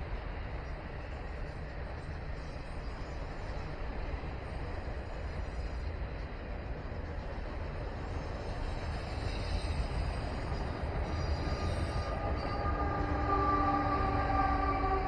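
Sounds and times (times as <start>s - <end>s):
freight train rumbling on rails: 0.0s - 15.0s
diesel locomotive pitched tones: 9.0s - 15.0s.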